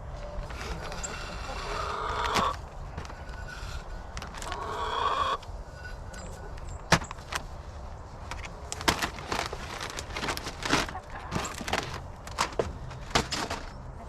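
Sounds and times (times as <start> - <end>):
handling clicks and knocks: 6.1 - 7.5, 8.2 - 13.9.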